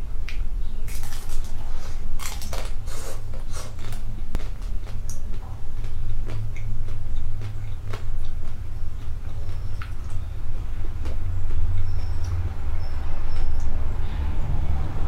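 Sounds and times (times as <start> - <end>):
low hum: 0.0 - 15.0
crisp bites and chewing: 0.9 - 10.2.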